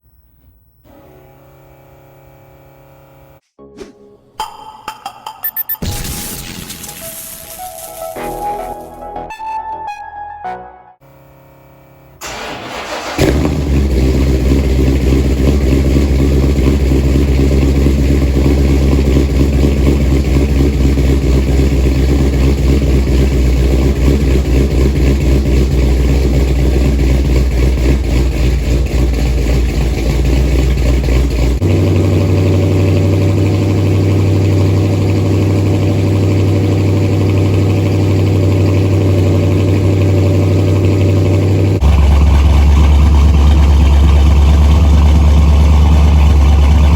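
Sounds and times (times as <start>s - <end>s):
loud car engine pulsing exhaust: 11.0s - 46.9s.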